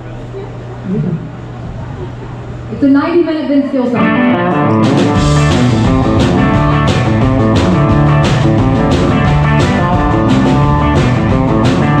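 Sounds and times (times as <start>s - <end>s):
guitar: 0.0s - 12.0s
live band playing country music: 3.9s - 12.0s.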